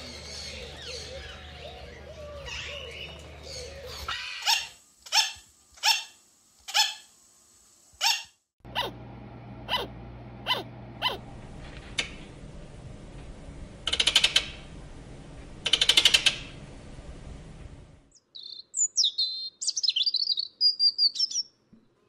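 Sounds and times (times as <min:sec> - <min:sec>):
macaws chattering and squawking: 0:00.0 - 0:06.0
sugar glider barking yaps: 0:04.1 - 0:07.1, 0:08.0 - 0:09.0, 0:09.7 - 0:11.2.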